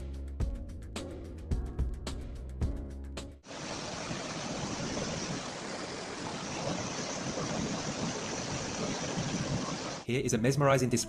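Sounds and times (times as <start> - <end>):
steady rushing noise: 3.5 - 10.1.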